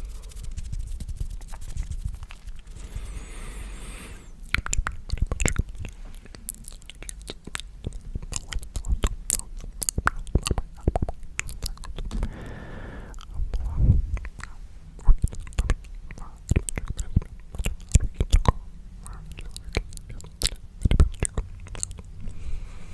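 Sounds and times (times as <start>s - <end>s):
breathy whisper: 12.1s - 13.2s
wet mouth clicks and smacks: 19.3s - 22.1s.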